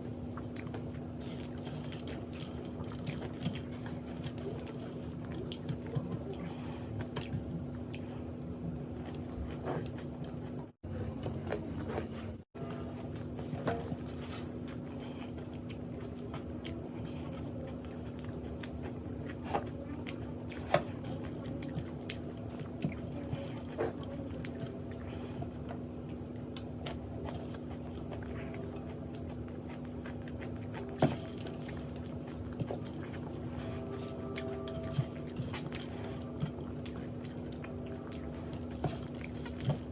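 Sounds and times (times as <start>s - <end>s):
person chewing food: 0.0s - 39.9s
steady low hum: 0.0s - 39.9s.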